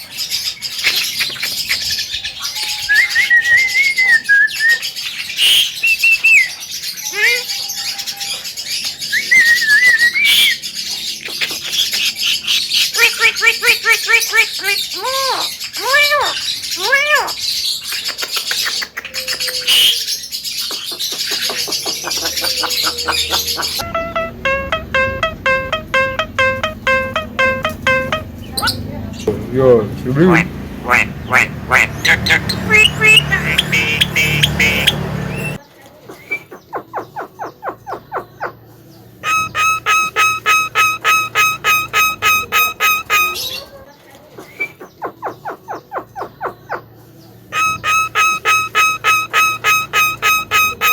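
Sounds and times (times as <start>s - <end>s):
myna whistled call: 2.4s - 8.2s, 9.1s - 10.6s, 32.0s - 35.6s, 39.2s - 43.7s, 47.6s - 50.9s
myna bird calling: 4.7s - 38.6s, 39.2s - 43.8s, 47.5s - 50.9s.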